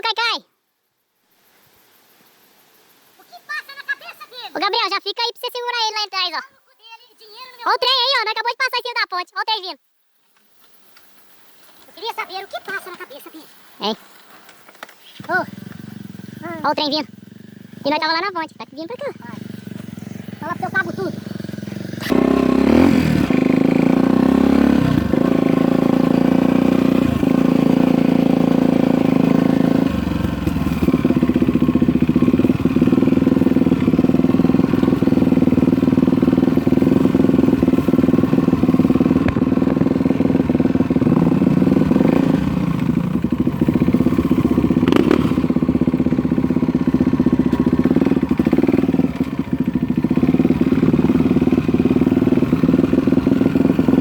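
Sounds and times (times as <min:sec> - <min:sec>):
dirt bike engine running: 0:15.2 - 0:54.0.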